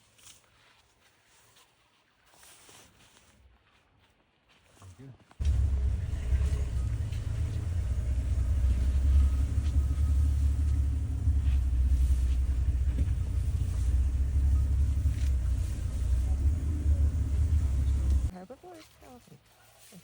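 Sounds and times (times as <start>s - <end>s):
vehicle engine idling: 5.4s - 18.3s.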